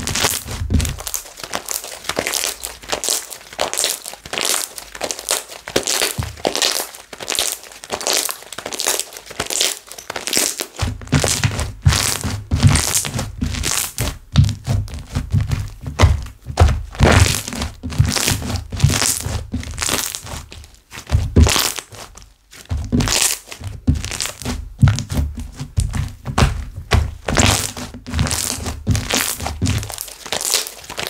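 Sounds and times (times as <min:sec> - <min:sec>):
slime squelching: 0:00.0 - 0:31.0.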